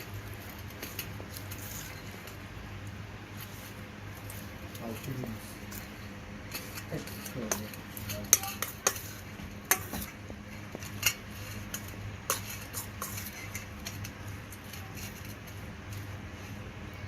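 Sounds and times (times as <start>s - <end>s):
utensils clinking against dishes: 4.3s - 16.2s.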